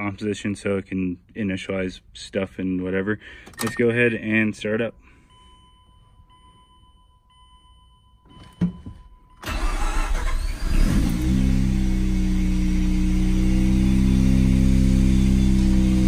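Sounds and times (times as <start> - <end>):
car engine starting and idling: 9.2 - 16.0.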